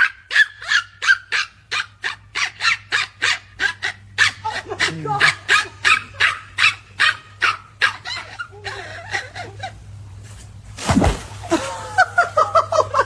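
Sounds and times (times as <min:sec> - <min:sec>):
dog bark: 0:00.0 - 0:08.5.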